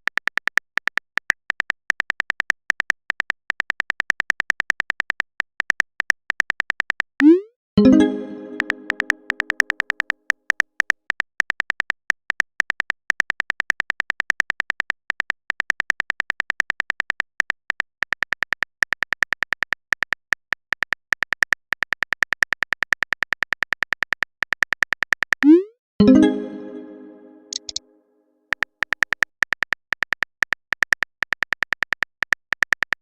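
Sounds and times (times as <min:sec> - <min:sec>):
keyboard typing clicks: 0:00.0 - 0:18.6, 0:24.4 - 0:27.8
message alert chime: 0:07.2 - 0:09.6, 0:25.4 - 0:27.8.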